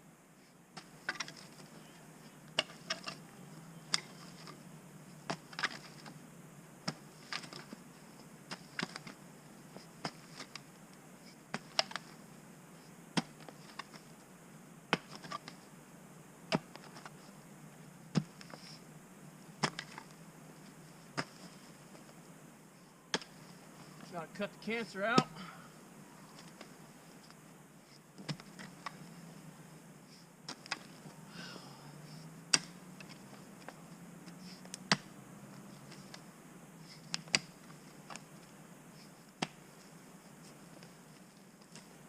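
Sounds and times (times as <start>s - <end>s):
digging tool striking dirt and stones: 2.5s - 3.2s, 5.3s - 6.1s, 8.5s - 9.2s, 10.0s - 10.6s, 11.5s - 12.2s, 14.9s - 15.6s, 16.5s - 17.1s, 18.1s - 18.6s, 19.6s - 20.1s, 21.1s - 21.5s, 23.1s - 23.4s, 28.2s - 29.0s, 32.5s - 33.1s, 34.8s - 35.1s, 37.1s - 38.2s.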